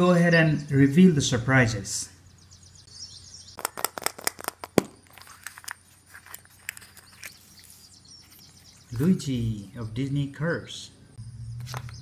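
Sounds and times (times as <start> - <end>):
toy egg opening clicks: 3.6 - 5.8.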